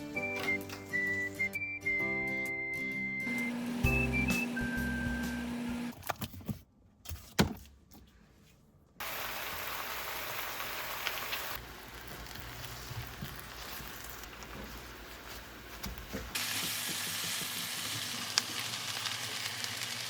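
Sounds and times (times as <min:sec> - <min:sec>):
food sizzling in a pan: 0:09.0 - 0:20.0.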